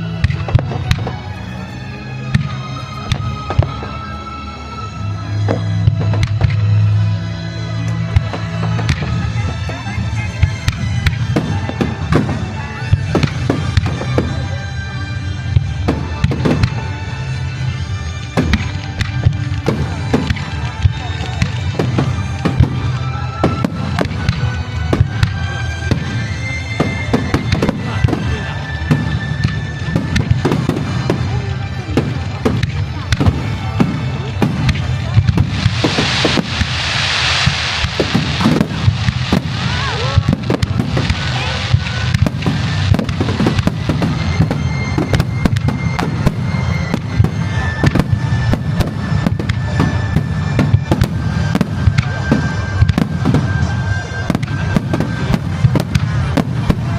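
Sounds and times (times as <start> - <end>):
music playing: 0.0 - 56.9
firework shells bursting: 32.0 - 56.9
loud hissing rush: 33.3 - 49.2.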